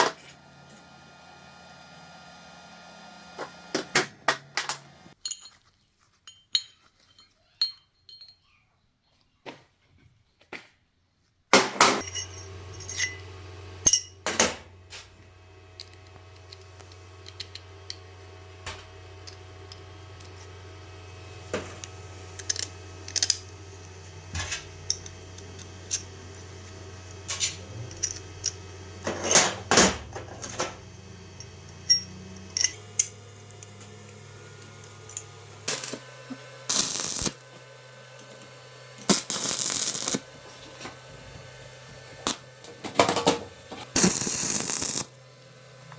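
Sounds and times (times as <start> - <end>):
metal tools clinking on workbench: 4.6 - 8.5, 11.9 - 13.3, 13.9 - 14.6, 27.3 - 30.8, 31.4 - 33.9.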